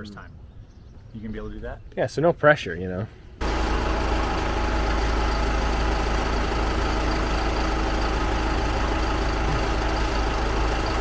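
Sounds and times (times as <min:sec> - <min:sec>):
truck engine idling: 0:03.4 - 0:11.0.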